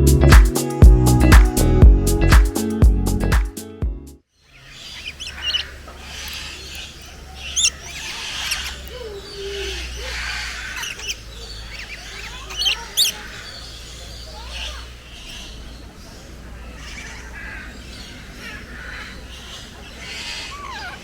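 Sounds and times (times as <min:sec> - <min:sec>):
birds chirping and squawking: 0:04.4 - 0:21.0.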